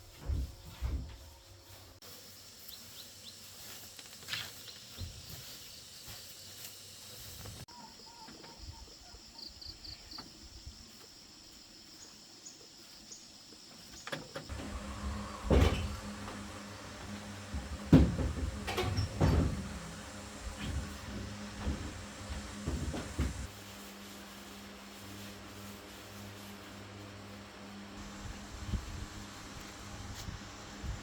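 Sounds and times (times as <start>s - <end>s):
knocks: 14.5s - 23.5s
steady low hum: 14.5s - 31.0s.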